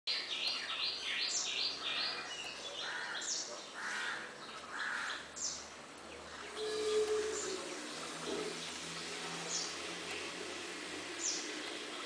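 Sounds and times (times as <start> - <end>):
harsh low bird calls: 6.2 - 12.0
rapid high bird notes: 6.5 - 10.4.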